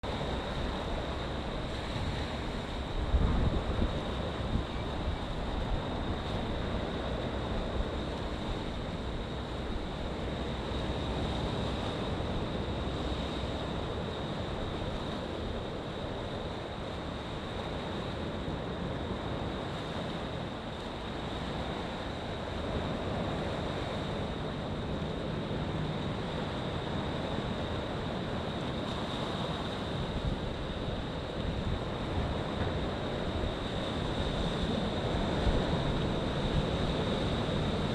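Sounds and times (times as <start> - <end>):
wind buffeting microphone: 0.0 - 17.8
waves washing in: 0.0 - 37.9.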